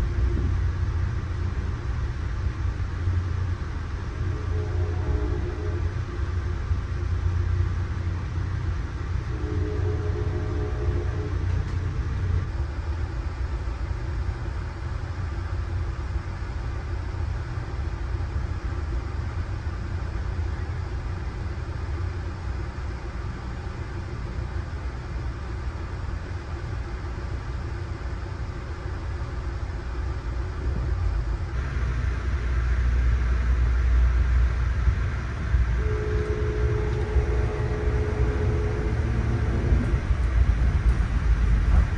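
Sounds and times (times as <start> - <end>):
train rumbling on rails: 0.0 - 41.9
steady tone: 31.5 - 41.9.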